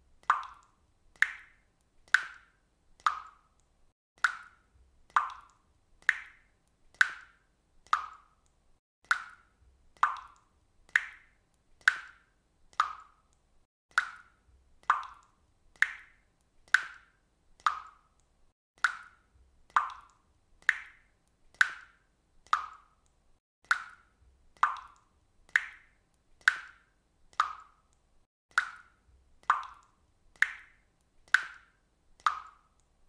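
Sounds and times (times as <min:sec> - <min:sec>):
water dripping from a faucet: 0:00.0 - 0:33.0.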